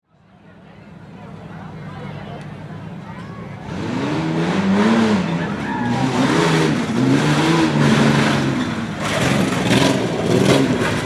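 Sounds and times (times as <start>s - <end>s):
truck engine revving: 3.6s - 11.0s.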